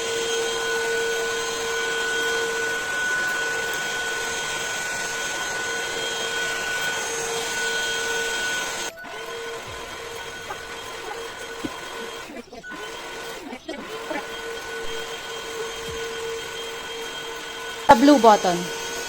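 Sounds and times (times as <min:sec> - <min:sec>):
vacuum cleaner whining: 0:00.0 - 0:19.0.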